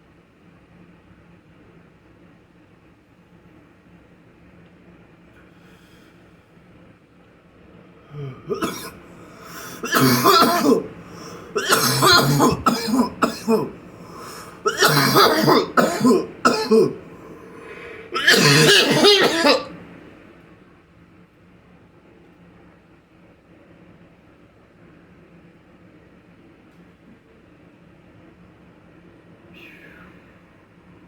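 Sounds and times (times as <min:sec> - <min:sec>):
man clearing throat: 0:08.1 - 0:19.9
man coughing hard: 0:08.1 - 0:19.9.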